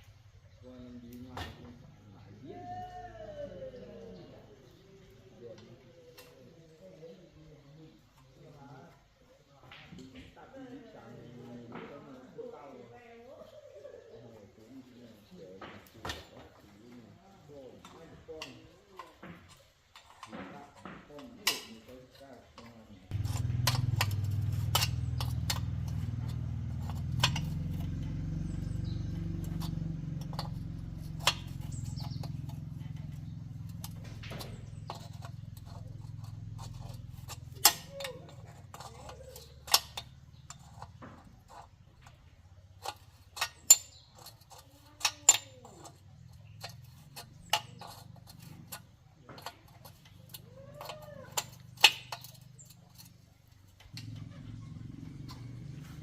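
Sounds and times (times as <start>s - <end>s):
sharp clicks and knocks: 22.6s - 56.0s
low hum: 23.1s - 37.4s.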